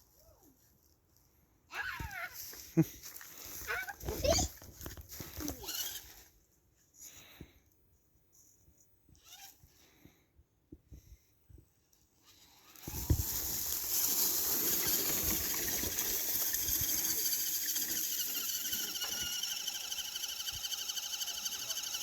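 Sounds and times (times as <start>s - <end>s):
electric motor and gearbox whining: 12.5s - 22.0s.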